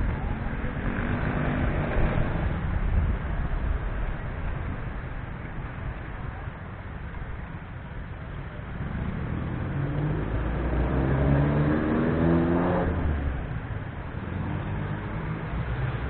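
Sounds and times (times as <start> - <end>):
vehicle engine accelerating: 0.0 - 4.2, 8.6 - 16.0
steady low rumble: 0.0 - 10.8.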